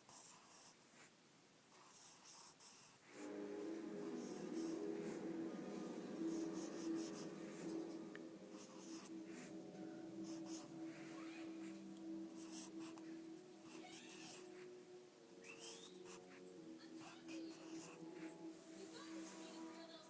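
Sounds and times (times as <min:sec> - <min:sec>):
drawing tool scratching paper: 0:01.8 - 0:03.2
steady low hum: 0:03.1 - 0:19.8.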